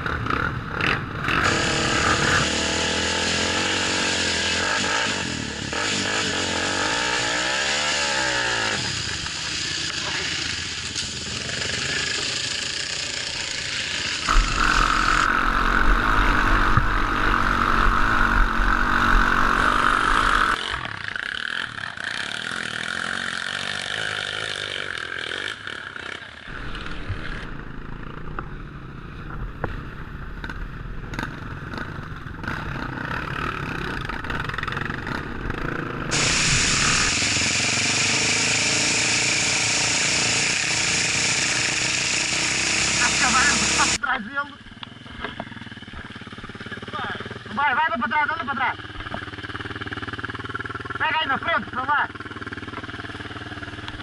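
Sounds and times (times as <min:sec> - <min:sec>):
motorcycle engines running: 0:00.0 - 0:54.0.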